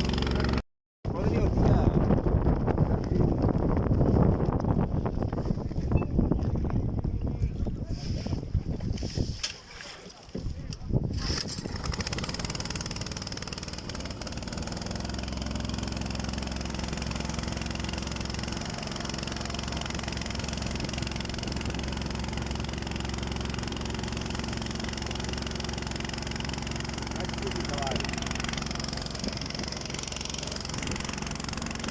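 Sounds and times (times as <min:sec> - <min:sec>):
engine idling: 0:11.7 - 0:31.9.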